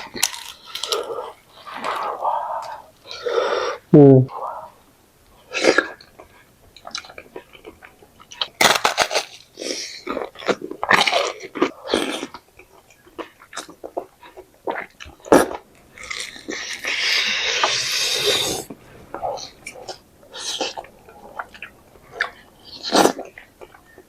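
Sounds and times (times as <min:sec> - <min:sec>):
crunchy bites: 0:00.0 - 0:02.1, 0:08.3 - 0:12.4
wet chewing: 0:05.5 - 0:24.0.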